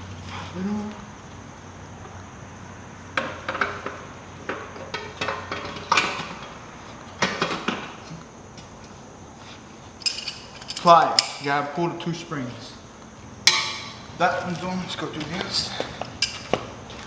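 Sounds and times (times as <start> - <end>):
metal parts and tools clinking: 10.0 - 11.4.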